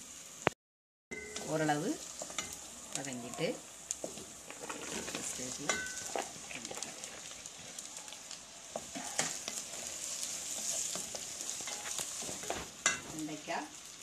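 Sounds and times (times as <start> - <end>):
vegetables sizzling in oil: 0.0 - 0.6, 1.2 - 14.0
wooden spatula scraping pan: 4.0 - 7.9, 8.7 - 13.2.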